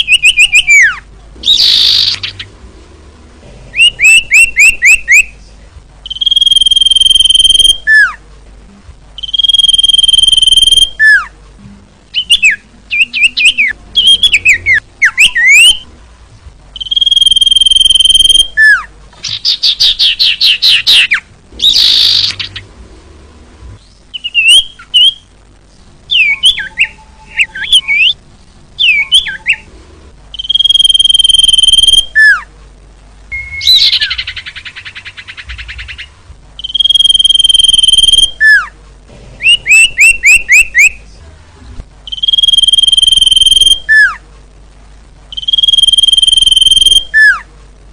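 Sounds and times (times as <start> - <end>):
bird whistles and chirps: 0.0 - 2.4, 3.8 - 5.3, 6.1 - 8.1, 9.2 - 11.3, 12.2 - 15.8, 16.8 - 22.6, 24.1 - 25.3, 26.1 - 28.2, 30.4 - 32.4, 33.3 - 38.7, 39.4 - 41.0, 42.1 - 44.2, 45.3 - 47.4.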